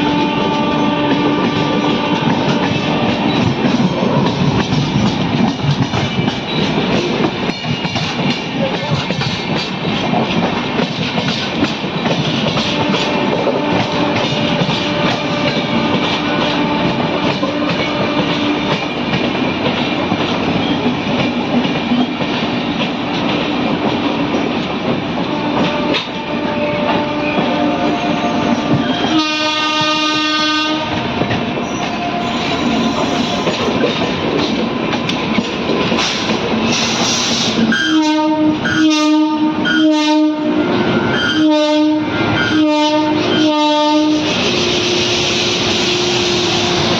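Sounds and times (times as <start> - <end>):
locomotive horn blasts: 0.0 - 3.0, 12.6 - 18.8, 25.3 - 31.1, 31.8 - 33.8, 37.7 - 44.4
train rumble and wheel clatter: 0.0 - 46.9.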